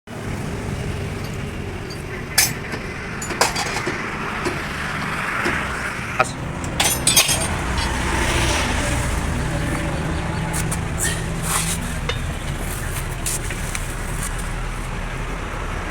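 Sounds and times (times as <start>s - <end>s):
traffic rumble: 0.1s - 15.9s
sharp metallic knocks: 1.2s - 4.8s, 5.4s - 8.5s.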